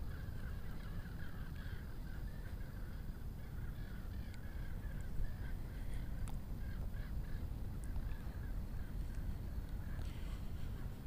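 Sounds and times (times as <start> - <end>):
birds calling: 0.0 - 11.0
steady low rumble: 0.0 - 11.0.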